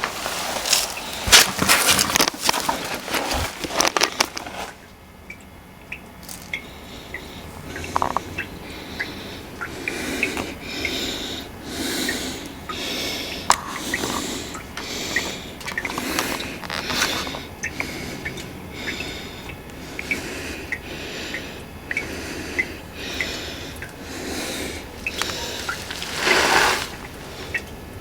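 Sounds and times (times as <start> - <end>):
person breathing heavily: 6.7 - 27.7.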